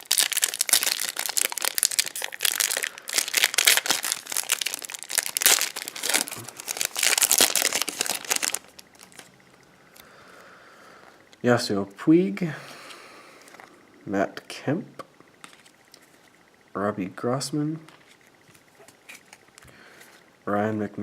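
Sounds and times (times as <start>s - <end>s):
plastic wrapper crinkling: 0.0s - 9.3s.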